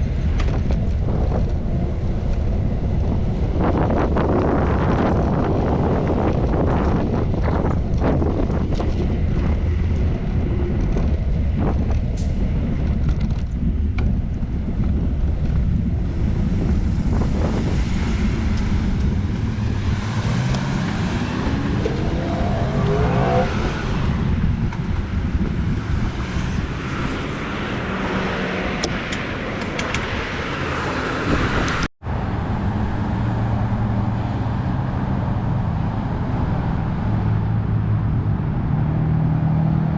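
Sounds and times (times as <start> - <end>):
traffic: 0.0 - 39.9
wind and road noise on bicycle: 0.0 - 39.9
motor vehicle passing: 15.6 - 37.5.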